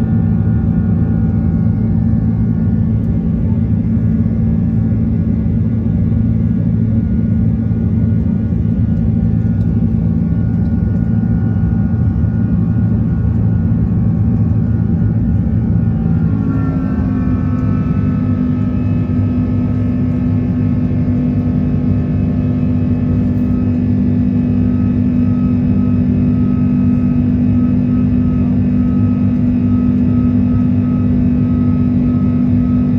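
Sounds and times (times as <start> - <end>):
jet engines roaring: 7.4 - 32.9.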